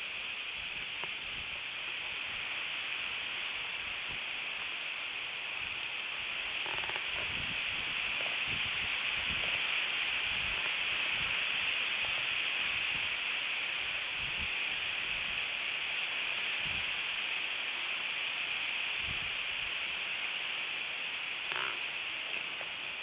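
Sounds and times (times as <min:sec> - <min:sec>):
wind hiss on microphone: 0:00.0 - 0:23.0
low wind gust thumps: 0:07.0 - 0:13.1.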